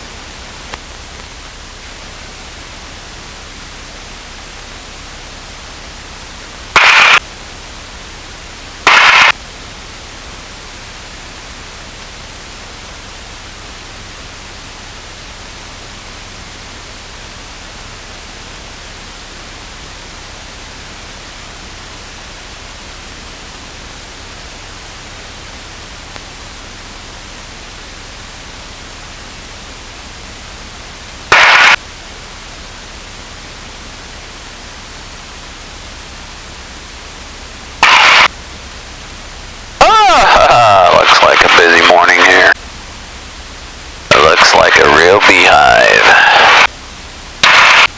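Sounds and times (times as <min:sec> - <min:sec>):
loud static bursts: 0:06.7 - 0:07.4, 0:08.8 - 0:09.4, 0:31.2 - 0:31.8, 0:37.7 - 0:38.3, 0:39.8 - 0:42.6, 0:44.0 - 0:46.7, 0:47.4 - 0:47.9
radio hiss: 0:06.7 - 0:07.4, 0:08.8 - 0:09.4, 0:31.2 - 0:31.8, 0:37.7 - 0:38.3, 0:39.8 - 0:42.6, 0:44.0 - 0:46.7, 0:47.4 - 0:47.9.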